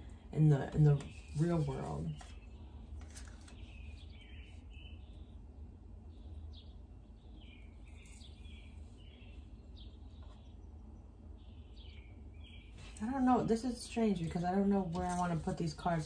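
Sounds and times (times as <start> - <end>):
steady low hum: 0.0 - 16.0
bird chirping: 3.4 - 14.7.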